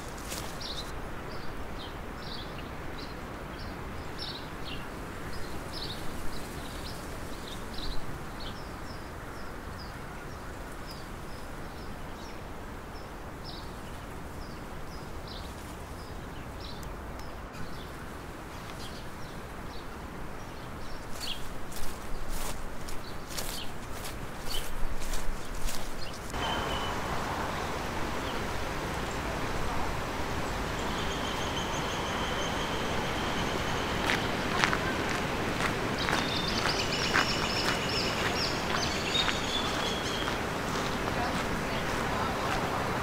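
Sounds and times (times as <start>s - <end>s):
steady rushing noise: 21.8s - 43.0s
small bird chirping: 36.0s - 40.4s.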